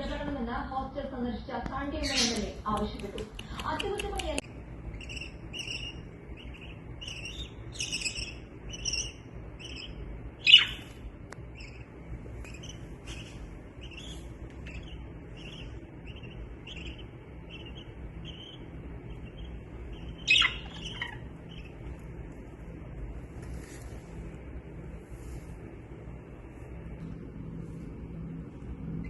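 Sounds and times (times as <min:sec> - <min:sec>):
budgerigars chirping: 0:01.9 - 0:02.5, 0:04.9 - 0:22.0
sharp bird calls: 0:01.9 - 0:02.5, 0:04.8 - 0:22.0.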